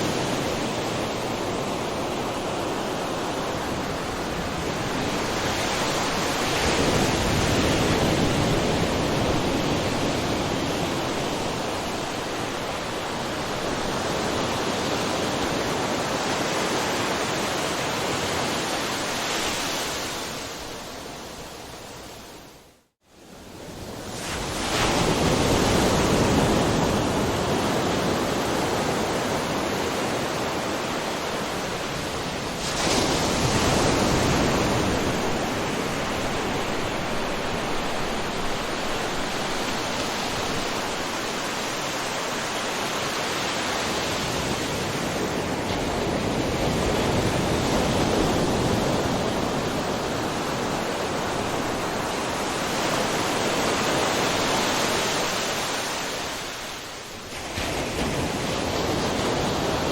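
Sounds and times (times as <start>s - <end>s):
waves breaking on shore: 0.0s - 22.5s, 23.2s - 59.9s
wave crashing: 24.1s - 59.9s.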